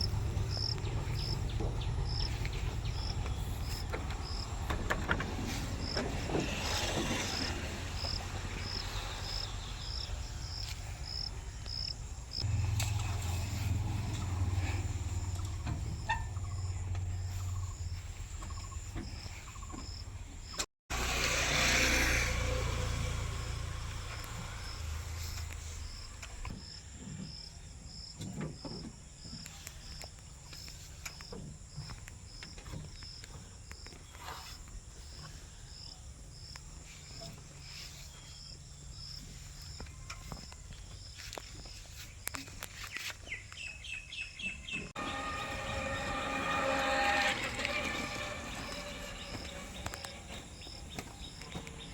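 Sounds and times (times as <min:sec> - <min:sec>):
crickets chirping: 0:00.0 - 0:04.8, 0:07.3 - 0:12.6, 0:22.7 - 0:42.4, 0:43.3 - 0:51.9
low engine rumble: 0:00.0 - 0:20.3, 0:44.6 - 0:51.9.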